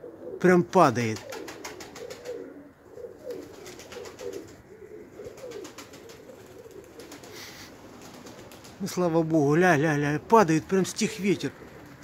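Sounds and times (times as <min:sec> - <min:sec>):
pigeons cooing: 0:00.0 - 0:00.5, 0:01.1 - 0:08.8, 0:11.1 - 0:12.0.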